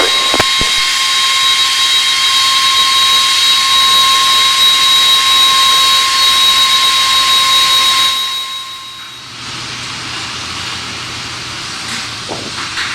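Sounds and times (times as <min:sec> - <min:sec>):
jet engines at high power: 0:00.0 - 0:09.4.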